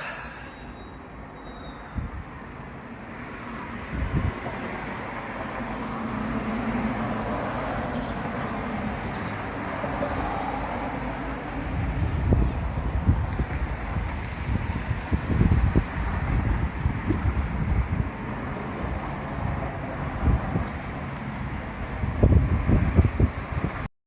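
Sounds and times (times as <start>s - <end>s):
wind buffeting the microphone: 1.9s - 2.4s, 3.8s - 4.8s, 11.4s - 23.9s
strong wind rushing: 3.8s - 4.6s, 9.8s - 20.8s, 21.8s - 23.9s.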